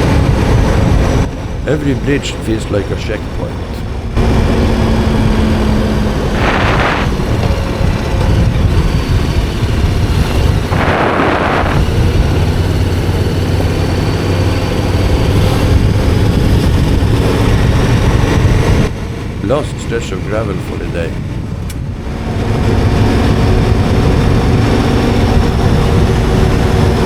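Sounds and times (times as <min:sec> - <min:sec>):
wind and road noise: 0:00.0 - 0:27.0
motorcycle engine running: 0:03.8 - 0:19.2
hissing rushes: 0:04.2 - 0:13.5.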